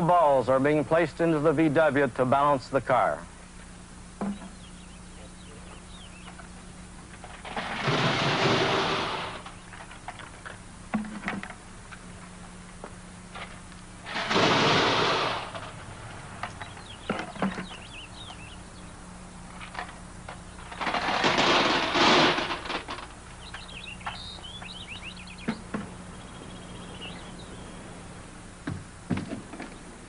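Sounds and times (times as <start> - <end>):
steady low hum: 0.0 - 30.0
steel balls rattling into car: 14.0 - 15.8, 20.6 - 24.2.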